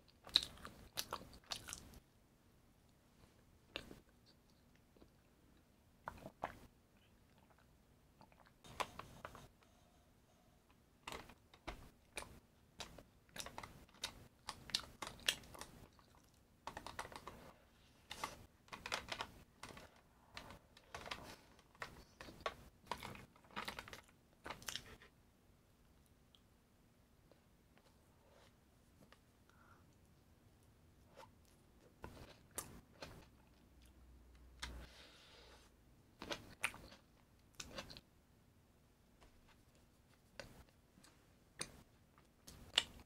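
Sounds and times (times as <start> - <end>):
chewing crunchy food: 0.1 - 2.0, 12.1 - 17.2, 36.2 - 38.0.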